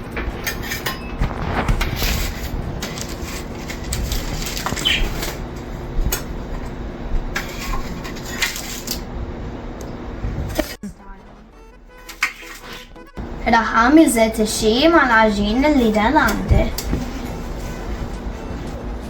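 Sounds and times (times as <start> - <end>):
rustling and scraping of baked bread: 0.1 - 9.2, 15.6 - 19.0.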